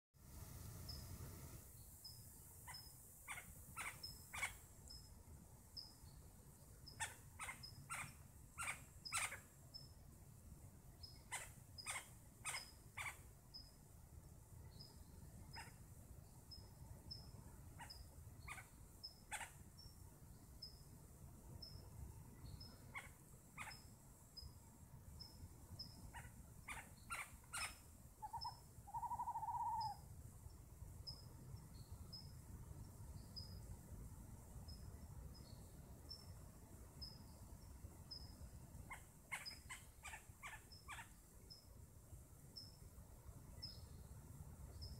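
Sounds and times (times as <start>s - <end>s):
faint high insect chirp: 0.2s - 44.9s
wavering bird call: 26.1s - 30.0s
bird call notes: 26.2s - 30.0s.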